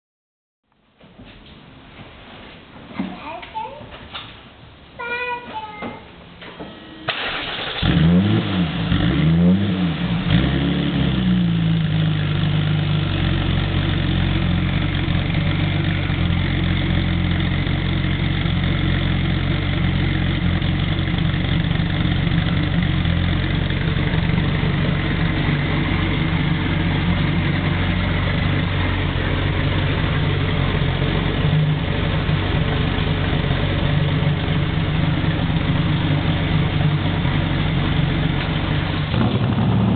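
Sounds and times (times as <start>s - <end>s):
car engine starting and revving: 7.1s - 39.9s
car engine idling: 10.0s - 39.9s.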